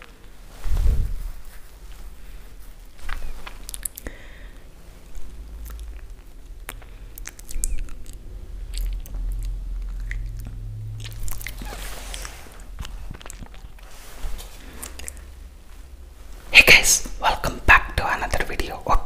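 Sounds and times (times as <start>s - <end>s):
chewing raw rice crunches: 2.9s - 4.1s, 5.0s - 15.3s.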